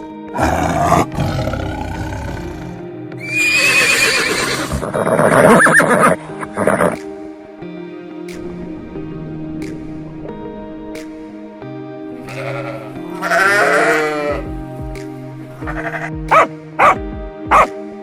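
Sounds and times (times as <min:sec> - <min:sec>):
background music: 0:00.0 - 0:18.0
horse neighing: 0:00.4 - 0:07.0, 0:12.3 - 0:14.5, 0:15.6 - 0:16.2.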